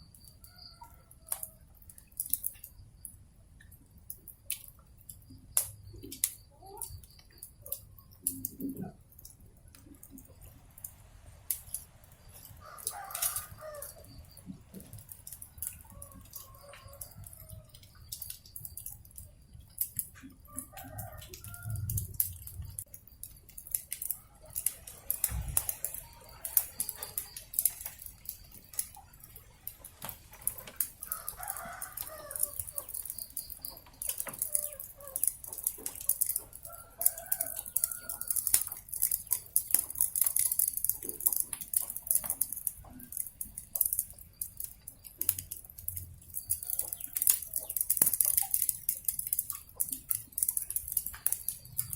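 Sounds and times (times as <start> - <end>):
wood fire crackling: 0.0 - 51.9
rooster crowing: 12.4 - 14.4, 15.7 - 17.9, 20.4 - 22.2, 30.9 - 35.6, 36.2 - 38.7
chickens clucking: 24.1 - 43.2.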